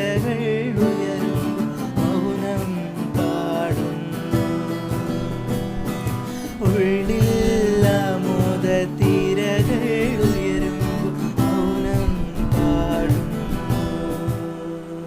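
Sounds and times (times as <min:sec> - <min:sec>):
acoustic guitar strumming: 0:00.0 - 0:15.0
person singing: 0:00.0 - 0:15.0.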